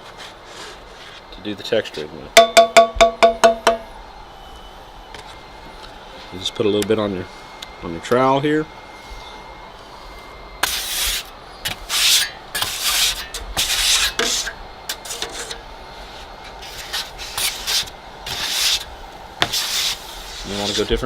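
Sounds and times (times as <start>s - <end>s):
trowel scraping compound on wall: 10.6s - 15.6s, 16.6s - 21.0s.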